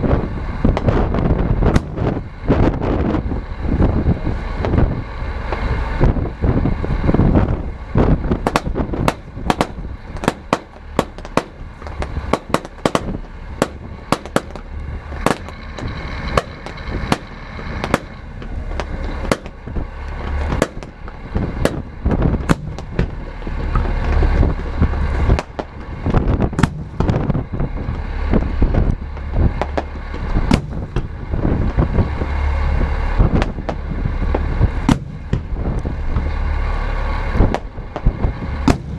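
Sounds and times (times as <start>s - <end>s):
steady low rumble: 0.0s - 38.9s
fireworks bursting with cracks and bangs: 7.2s - 36.4s, 37.3s - 38.9s.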